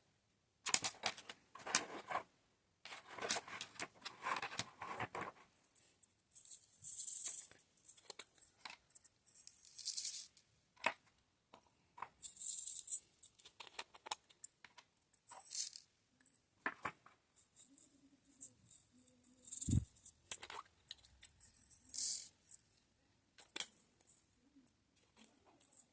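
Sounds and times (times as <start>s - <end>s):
plastic beads rattling in a tray: 6.4s - 10.4s, 12.2s - 13.4s, 15.2s - 15.9s, 17.4s - 22.7s.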